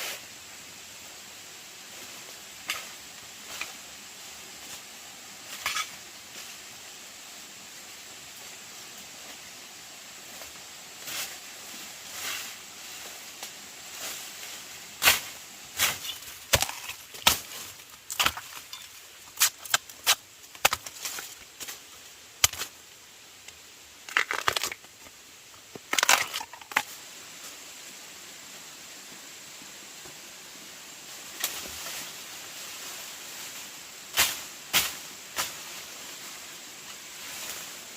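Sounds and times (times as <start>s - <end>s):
steady hiss: 0.0s - 37.9s.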